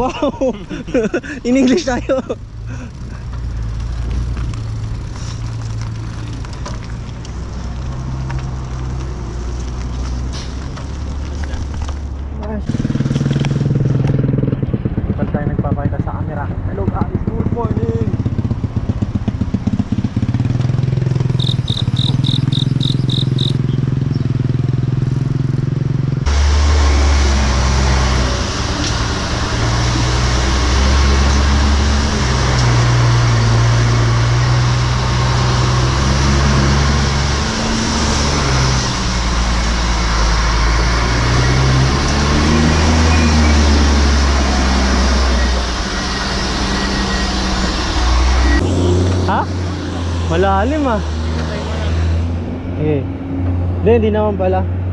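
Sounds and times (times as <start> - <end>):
vehicle engine rumbling: 0.0 - 54.9
wind and road noise: 0.0 - 54.9
rapid high beeps: 21.3 - 23.6.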